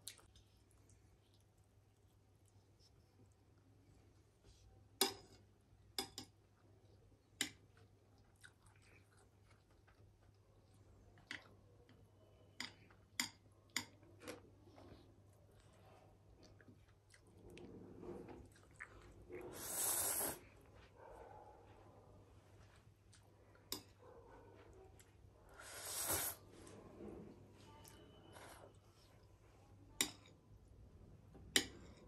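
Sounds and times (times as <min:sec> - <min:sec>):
person chewing noodles: 0:07.8 - 0:11.5, 0:15.6 - 0:17.6, 0:18.4 - 0:20.5.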